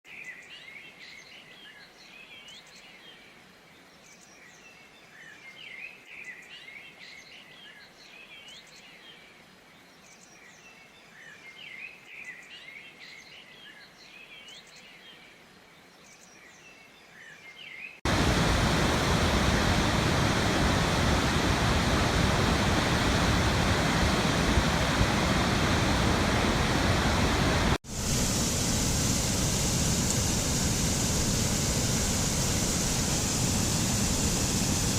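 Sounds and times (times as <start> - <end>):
birds chirping: 18.1 - 34.9
waterfall rushing: 18.1 - 34.9.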